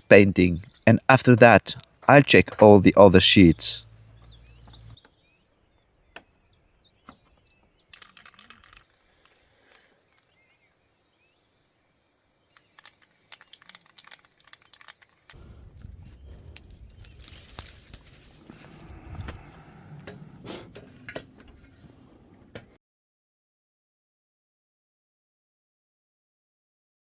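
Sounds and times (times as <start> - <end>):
faint bird chirps: 3.8 - 8.0, 10.0 - 15.3
clicks and rustling of handling: 7.0 - 10.4, 12.6 - 22.8
aerosol spray hiss: 8.8 - 15.4.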